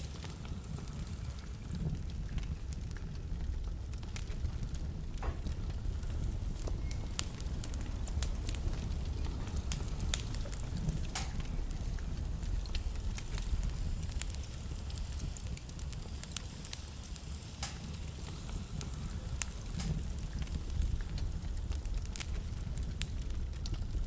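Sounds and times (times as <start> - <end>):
fire crackling: 0.0 - 24.0
fire rumbling: 0.0 - 24.0
logs popping: 0.1 - 24.0.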